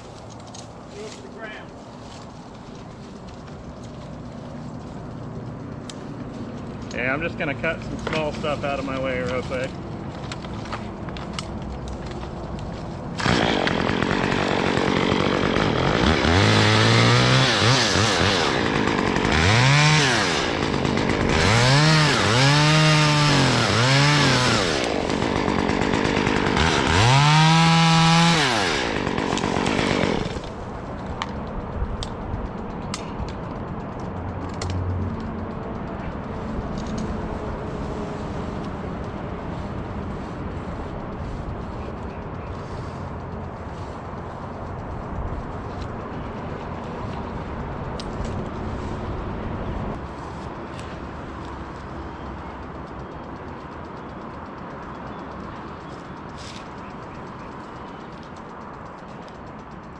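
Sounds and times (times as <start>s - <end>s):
chainsaw cutting branches: 12.0s - 31.2s.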